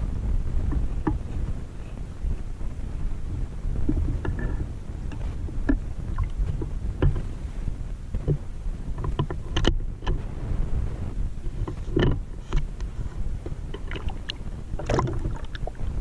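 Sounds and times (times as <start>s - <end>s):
underwater rumble of water: 0.0s - 16.0s
sharp clicks and knocks: 9.0s - 10.2s, 11.6s - 12.7s.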